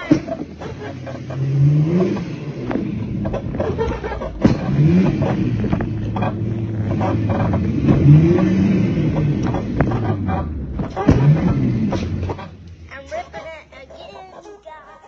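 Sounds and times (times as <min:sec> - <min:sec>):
sharp clicks and knocks: 0:00.0 - 0:13.5
dirt bike engine revving: 0:00.0 - 0:14.0.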